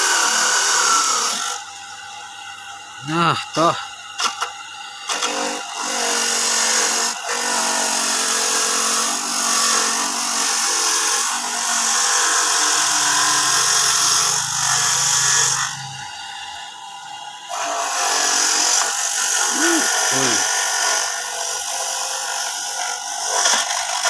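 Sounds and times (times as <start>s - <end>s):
coconut grating machine whirring: 0.0s - 24.0s.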